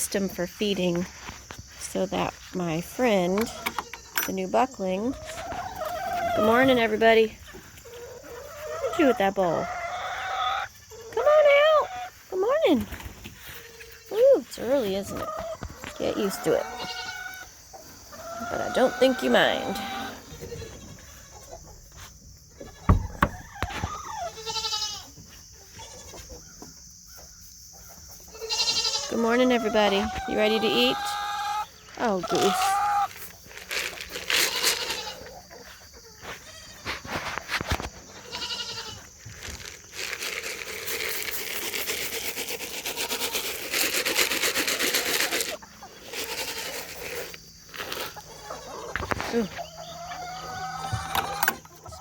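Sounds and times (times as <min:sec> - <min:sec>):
goat bleating: 0:16.6 - 0:17.3, 0:24.3 - 0:25.0, 0:28.4 - 0:29.2, 0:38.2 - 0:39.0
dry rustling and crackling: 0:31.9 - 0:35.3, 0:36.3 - 0:49.4.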